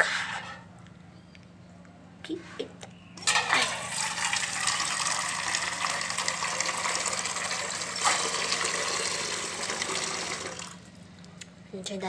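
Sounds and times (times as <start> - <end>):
tap water running into bowl: 3.2 - 11.0.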